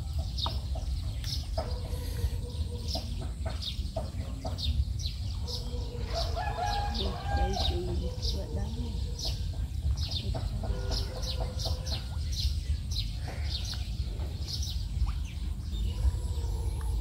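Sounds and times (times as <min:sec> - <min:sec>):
birds chirping: 0:00.0 - 0:17.0
constant low rumble: 0:11.9 - 0:17.0.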